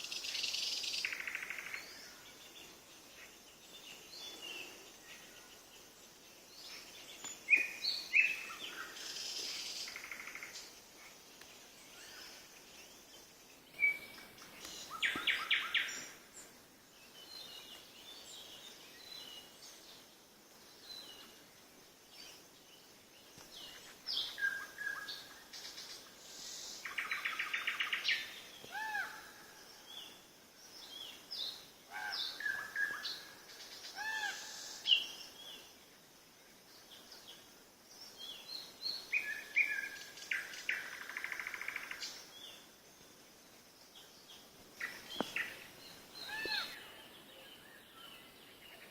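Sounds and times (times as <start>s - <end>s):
songbirds chirping and whistling: 0.0s - 21.4s, 36.7s - 42.8s, 43.8s - 48.9s.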